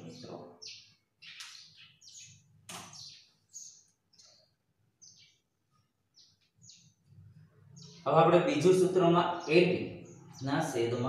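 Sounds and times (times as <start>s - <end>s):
small birds chirping faintly: 0.0s - 11.0s.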